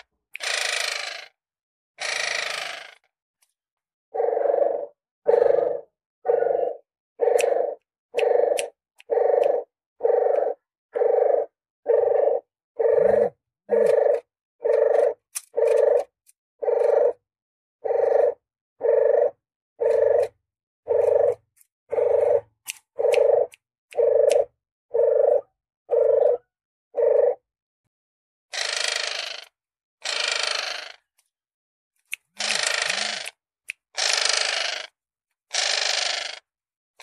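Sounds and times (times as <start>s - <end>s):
dove cooing: 4.2s - 17.2s, 17.8s - 27.4s.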